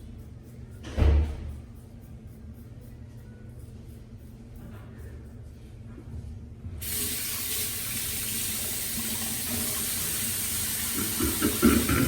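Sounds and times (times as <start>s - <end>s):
faucet turned on: 6.8s - 12.0s
water running into basin: 6.8s - 12.0s.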